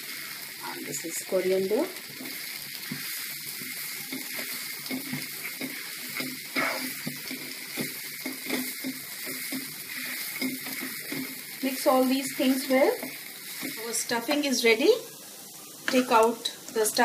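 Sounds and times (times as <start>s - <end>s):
food sizzling in hot oil: 0.0s - 17.0s
wooden spatula scraping wok: 2.0s - 14.6s.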